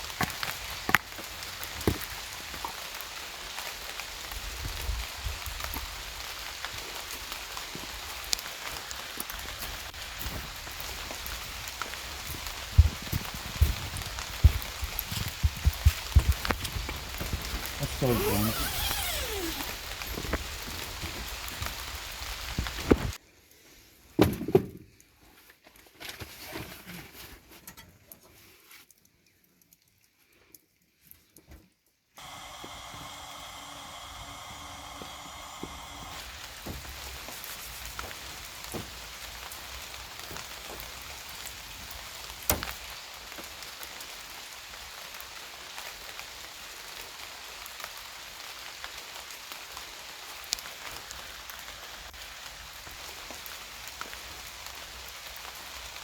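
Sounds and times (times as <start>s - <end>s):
rain pattering: 0.0s - 18.2s, 19.8s - 23.2s, 36.2s - 56.0s.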